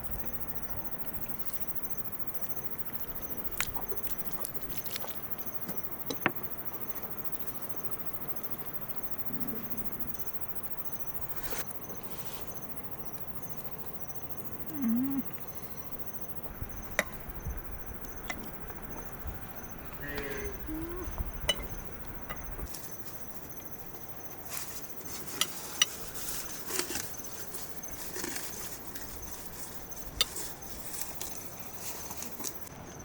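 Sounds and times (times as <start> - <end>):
crickets chirping: 0.0 - 33.0.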